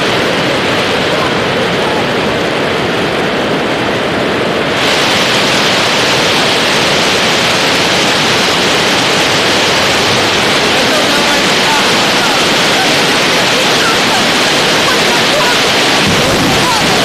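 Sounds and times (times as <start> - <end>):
hail and heavy rain: 0.0 - 17.0.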